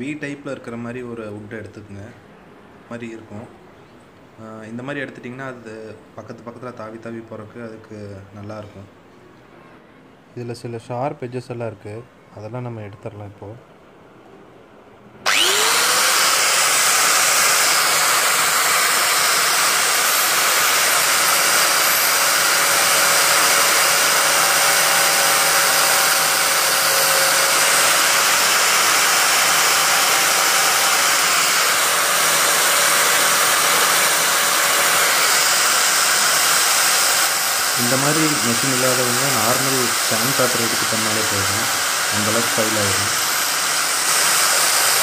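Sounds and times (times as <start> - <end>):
electric sander motor whining: 15.2 - 45.0
sanding wood: 15.3 - 45.0.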